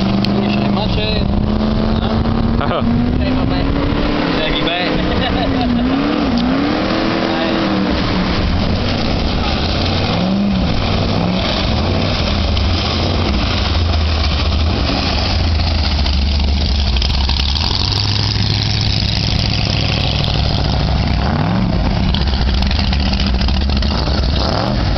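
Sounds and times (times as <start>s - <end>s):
speedboat engine: 0.0s - 24.9s
water rushing: 0.0s - 24.9s.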